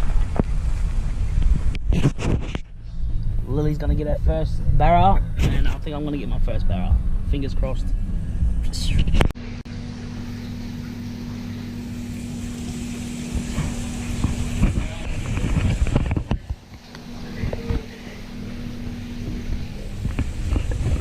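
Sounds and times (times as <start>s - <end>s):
motor humming: 9.7s - 21.0s
wind on microphone: 13.3s - 16.6s, 17.4s - 21.0s.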